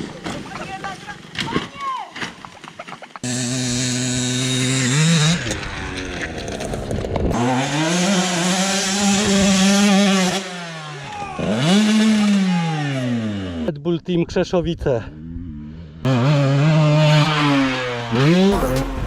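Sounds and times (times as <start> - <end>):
dirt bike engines revving: 2.6 - 13.7, 15.0 - 19.0.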